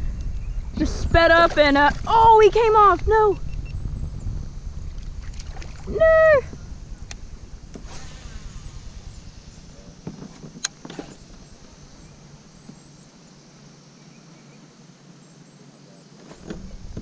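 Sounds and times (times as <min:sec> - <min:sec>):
low rumble: 0:00.0 - 0:12.4
faint insect buzz: 0:00.1 - 0:17.0.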